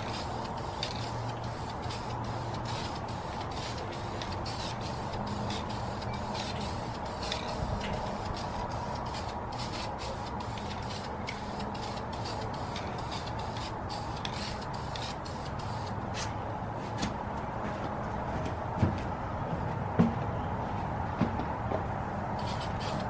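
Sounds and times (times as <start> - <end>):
spray hissing in pulses: 0.0 - 15.9, 22.4 - 23.0.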